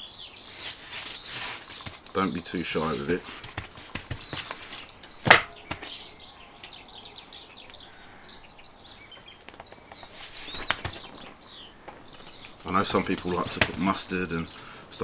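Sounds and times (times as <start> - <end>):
small birds chirping: 0.0 - 15.0
sharp knock: 5.2 - 5.6.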